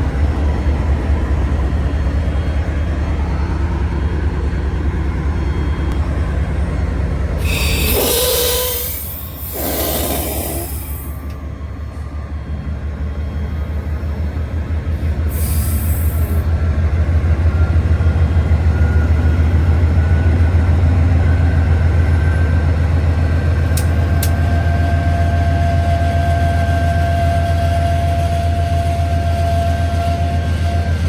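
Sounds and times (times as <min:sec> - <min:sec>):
freight train rumbling past: 0:00.0 - 0:31.0
wheel squeal: 0:07.4 - 0:11.4.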